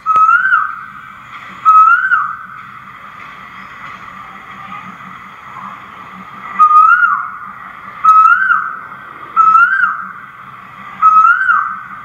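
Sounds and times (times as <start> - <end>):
bird whistling a call: 0.0 - 2.6, 6.5 - 10.3, 10.9 - 12.0
faint steady background noise: 0.0 - 12.0.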